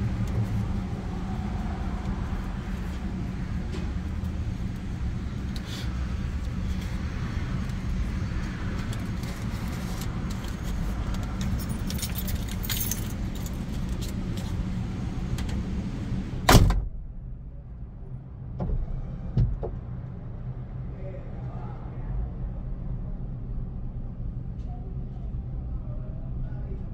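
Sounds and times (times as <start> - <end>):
vehicle rumble: 0.0 - 26.9
jangling and rattling: 8.9 - 14.6
low hum: 11.2 - 26.9
loud thump: 16.5 - 17.2.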